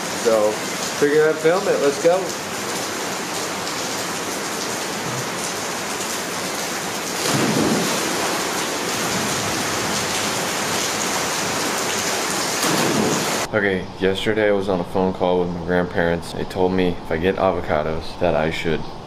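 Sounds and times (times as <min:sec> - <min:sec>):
heavy rain pouring: 0:00.0 - 0:13.5.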